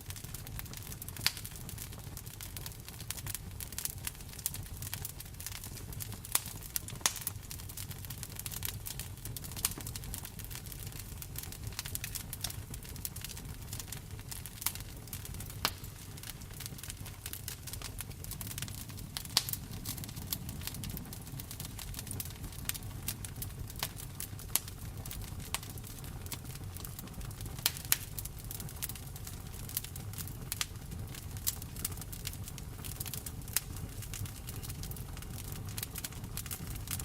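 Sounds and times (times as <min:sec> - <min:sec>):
wood fire crackling and popping: 0:00.0 - 0:37.0
rain rumble: 0:13.5 - 0:25.2.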